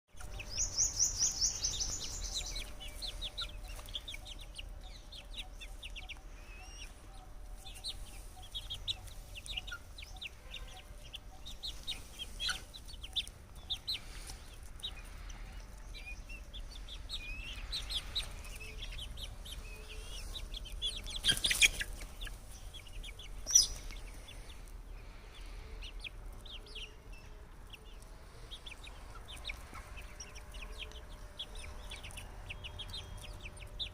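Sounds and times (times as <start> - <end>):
high chirps and peeps: 0.1 - 33.9
chickens clucking and calling: 0.2 - 33.9.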